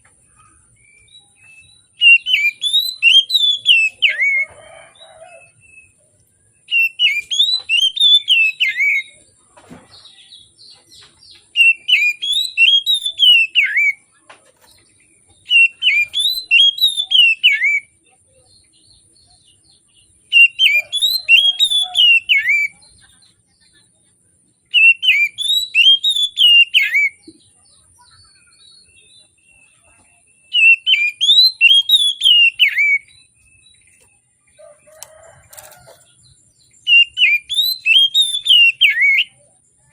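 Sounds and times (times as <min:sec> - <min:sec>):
magpie-robin singing: 0:00.8 - 0:04.6, 0:06.6 - 0:09.2, 0:10.1 - 0:17.9, 0:20.2 - 0:23.0, 0:24.7 - 0:27.2, 0:28.0 - 0:34.2, 0:34.9 - 0:39.9.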